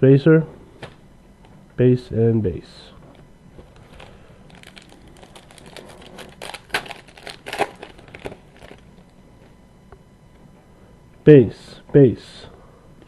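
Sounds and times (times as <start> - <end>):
wrapper tearing and crinkling: 3.7 - 9.1.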